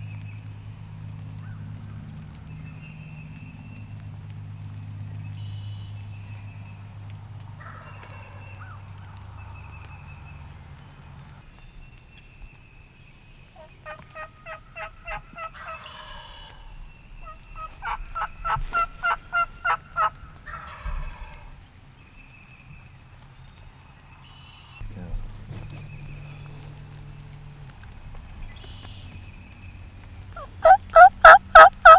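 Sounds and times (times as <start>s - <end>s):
wild turkey yelping: 13.6s - 21.6s, 25.3s - 31.9s.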